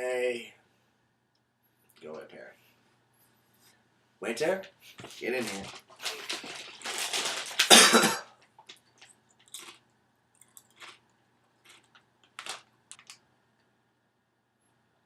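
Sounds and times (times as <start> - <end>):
person chewing crunchy food: 8.6 - 12.6.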